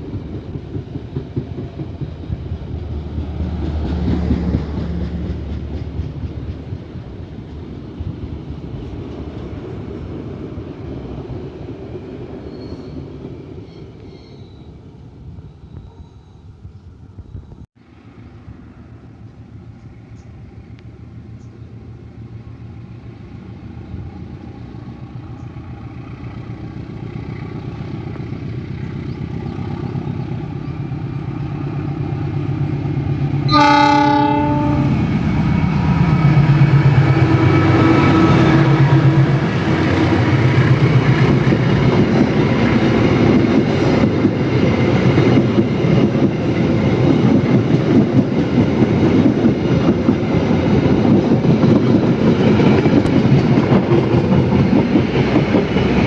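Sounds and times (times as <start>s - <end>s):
train wheels clattering: 0.0s - 2.7s, 36.3s - 56.0s
diesel locomotive engine: 0.0s - 56.0s
train horn blast: 33.5s - 35.2s.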